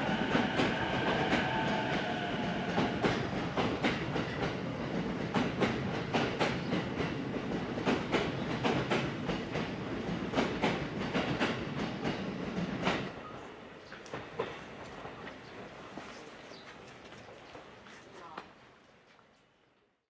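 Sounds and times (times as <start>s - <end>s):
electric train rumble: 0.0s - 16.0s.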